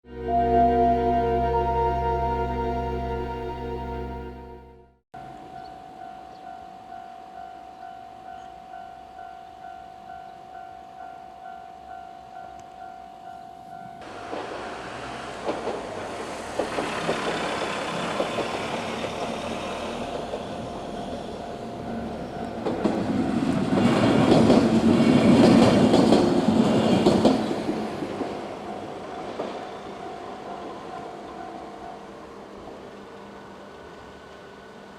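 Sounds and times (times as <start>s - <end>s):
level crossing warning bell: 0.1s - 14.4s, 17.3s - 24.9s, 28.4s - 32.4s
train wheels clacking over joints: 14.1s - 31.4s.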